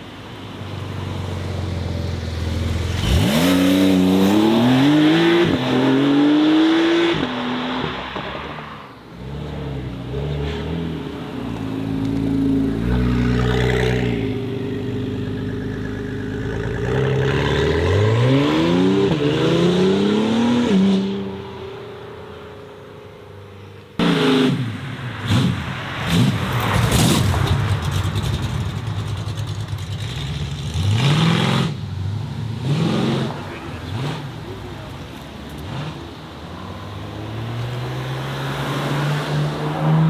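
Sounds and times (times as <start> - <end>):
car engine accelerating through upshifts: 2.5 - 8.4, 16.6 - 21.4, 35.6 - 40.0
car engine revving with sharp cracks: 24.0 - 31.8.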